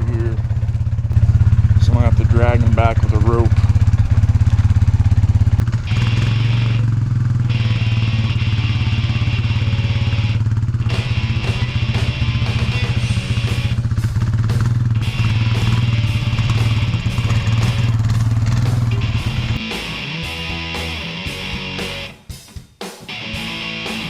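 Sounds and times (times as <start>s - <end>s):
vehicle engine running: 0.0s - 22.2s
music playing: 18.6s - 22.3s.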